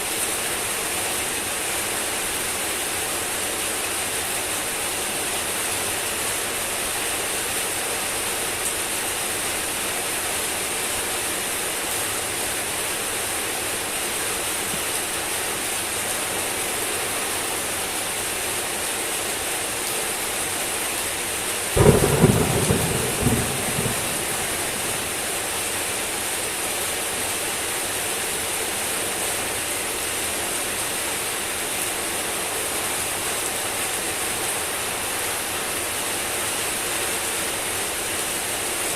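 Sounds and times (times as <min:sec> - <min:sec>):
heavy rain falling: 0:00.0 - 0:38.9
thunder clap rumbling: 0:21.8 - 0:25.8.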